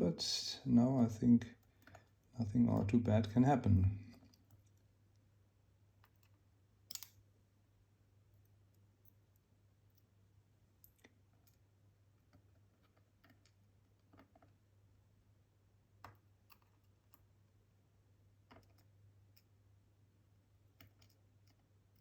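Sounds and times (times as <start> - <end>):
faint low hum: 0.0 - 22.0
small metal lock pins clicking: 6.0 - 7.2, 20.8 - 22.0.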